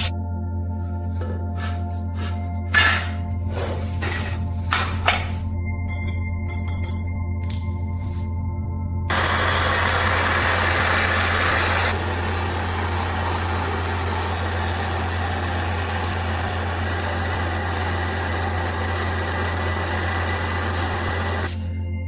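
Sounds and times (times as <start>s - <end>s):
motor running steadily: 9.1s - 21.6s.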